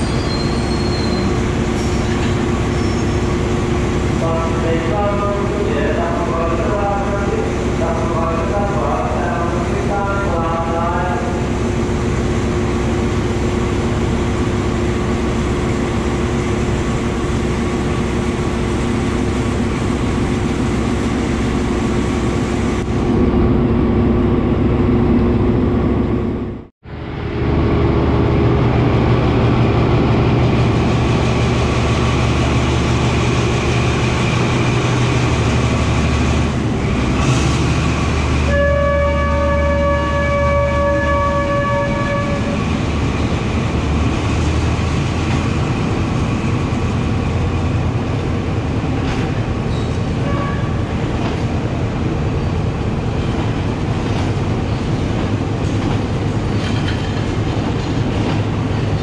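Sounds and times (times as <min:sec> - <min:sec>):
diesel locomotive engine drone: 0:00.0 - 0:59.0
train horn chord: 0:38.5 - 0:42.8, 0:50.2 - 0:50.8
train wheels clattering: 0:53.2 - 0:59.0.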